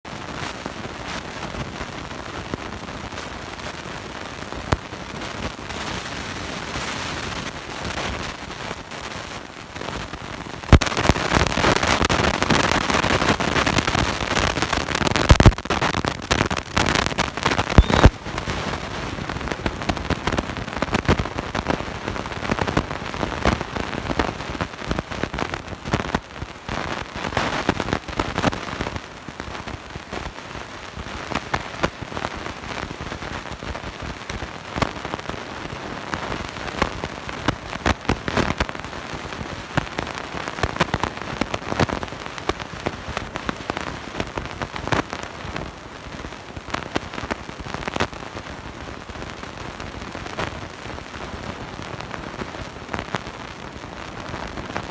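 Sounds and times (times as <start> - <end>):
harsh crackling noise: 0.1 - 54.9.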